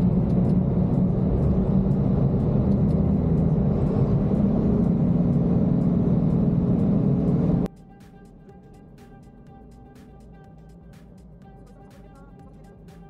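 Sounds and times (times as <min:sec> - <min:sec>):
truck engine and road rumble: 0:00.0 - 0:07.7.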